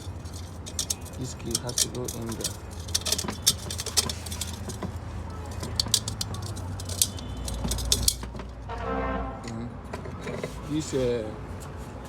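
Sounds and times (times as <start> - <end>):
metal parts clinking and tapping: 0.0 - 8.6.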